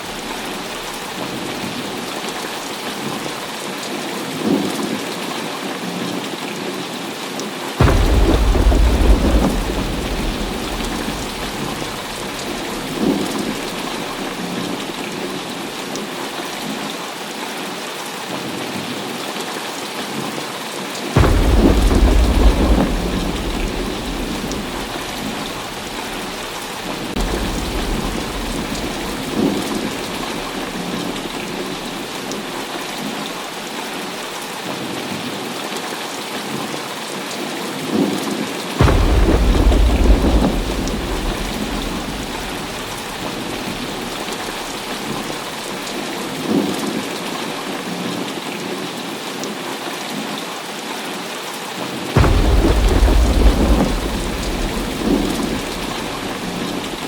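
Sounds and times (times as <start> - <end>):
heavy rain falling: 0.0 - 57.0
thunder rumbling: 7.8 - 15.8, 21.2 - 32.9, 38.8 - 46.6, 52.2 - 57.0.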